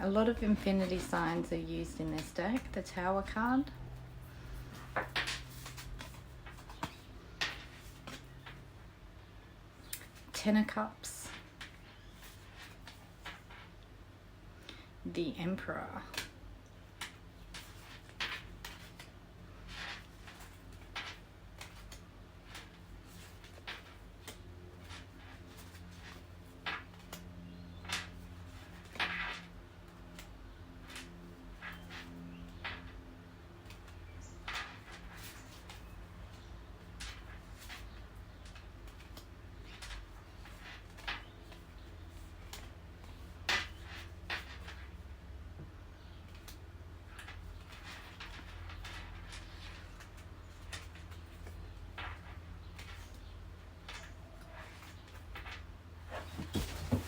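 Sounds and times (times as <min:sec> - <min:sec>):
low steady hum: 0:00.0 - 0:57.0
cards swishing and tapping: 0:04.0 - 0:08.6.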